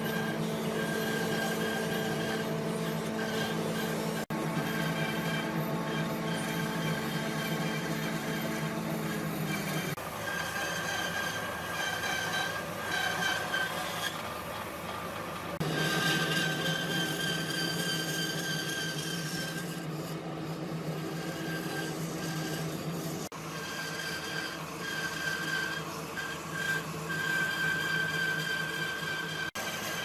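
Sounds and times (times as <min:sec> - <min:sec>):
electric power tool motor whine: 0:00.0 - 0:13.7.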